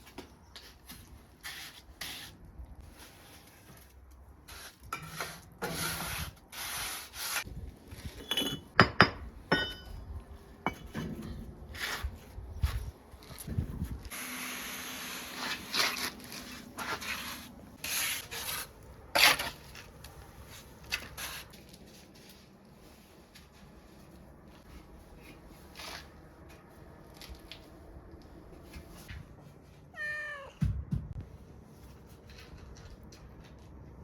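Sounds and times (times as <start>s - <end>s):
knocks and scraping: 7.5s - 14.0s.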